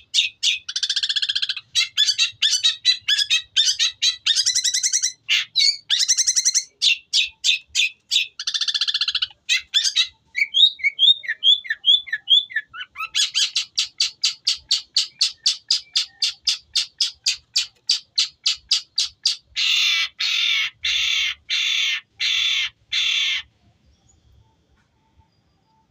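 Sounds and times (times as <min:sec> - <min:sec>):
bird singing harsh mimicked calls: 0:00.0 - 0:23.5.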